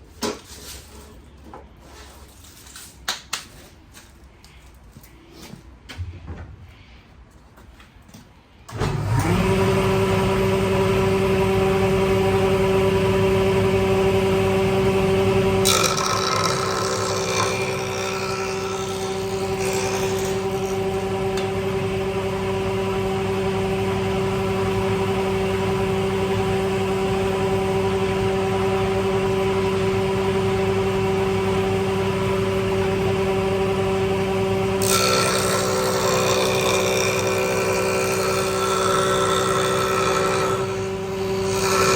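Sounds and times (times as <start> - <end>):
power tool motor humming: 8.8 - 21.8, 29.8 - 41.9.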